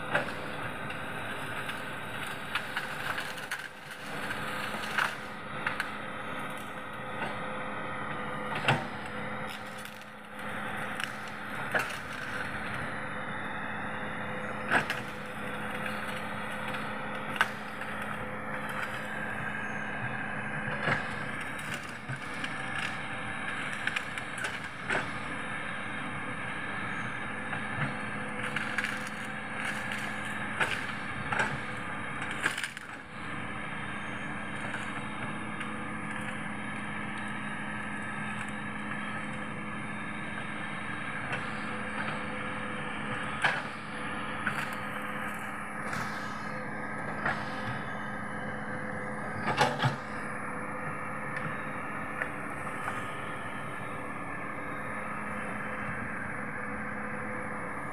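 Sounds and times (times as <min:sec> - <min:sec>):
excavator diesel engine: 0:00.0 - 0:57.9
wood cracking and splintering: 0:00.2 - 0:05.9, 0:08.6 - 0:12.7, 0:14.8 - 0:19.2, 0:20.7 - 0:25.2, 0:27.9 - 0:33.1.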